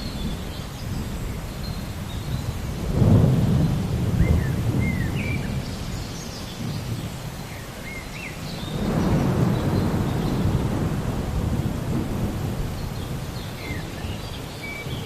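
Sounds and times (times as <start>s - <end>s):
steady rain: 0.0s - 15.0s
thunder rumbling: 2.3s - 6.0s, 8.7s - 15.0s
bird chirping: 12.8s - 15.0s.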